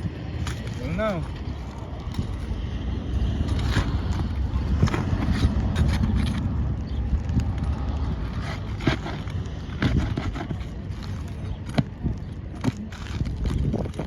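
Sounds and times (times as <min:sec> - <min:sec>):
steady low rumble: 0:00.0 - 0:14.0
roof shingles being pried loose: 0:08.0 - 0:14.0.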